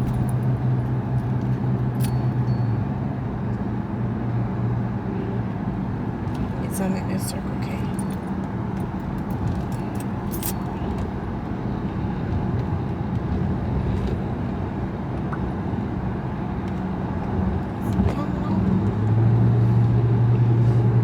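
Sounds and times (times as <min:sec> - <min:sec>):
car cabin hum: 0:00.0 - 0:02.4.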